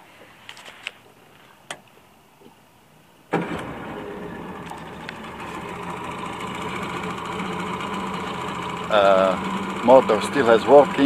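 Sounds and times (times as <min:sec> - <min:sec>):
outboard motor starting and idling: 0:03.3 - 0:11.0.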